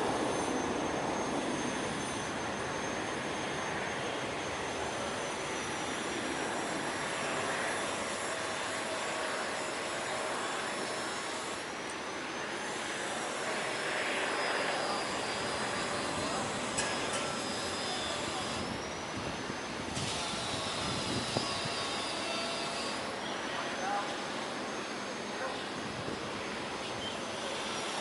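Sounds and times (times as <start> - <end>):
high engine whine: 0.0 - 28.0
jet engines rushing: 0.0 - 28.0.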